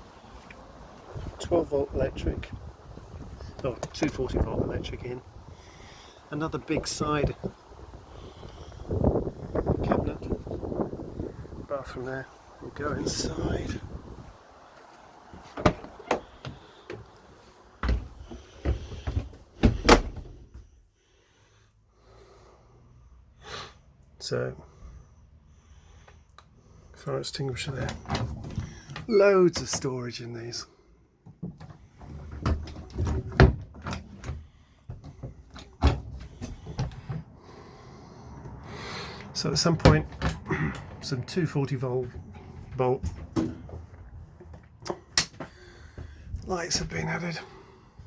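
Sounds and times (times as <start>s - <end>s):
cupboard doors knocking and clattering: 15.4s - 16.6s, 17.8s - 20.5s, 31.3s - 37.2s.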